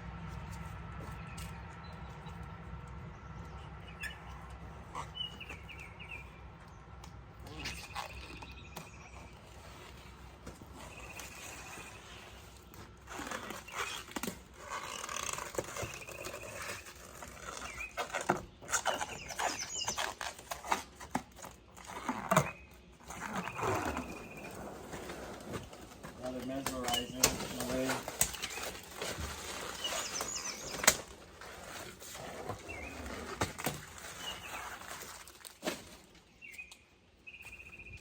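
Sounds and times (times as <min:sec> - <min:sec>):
rubber coating peeling and tearing: 0:07.4 - 0:24.7.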